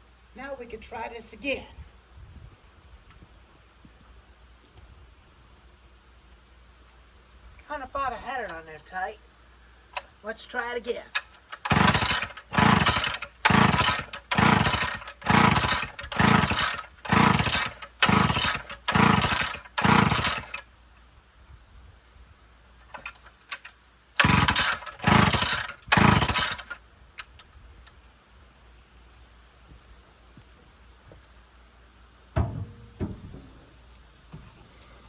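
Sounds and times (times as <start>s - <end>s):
chainsaw engine turning over: 11.1s - 20.7s, 22.9s - 27.4s.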